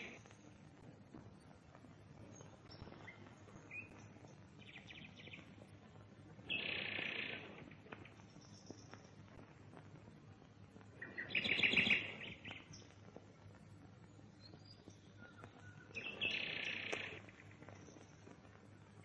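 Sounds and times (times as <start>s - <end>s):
faint steady hiss: 0.0s - 19.0s
bird chattering calls: 6.5s - 7.6s, 11.1s - 12.4s, 16.0s - 17.4s.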